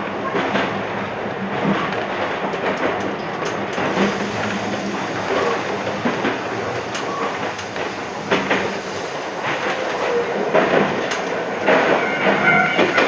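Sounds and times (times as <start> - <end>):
wheels clicking over rail joints: 1.6 - 13.0
electric train running: 3.8 - 13.0.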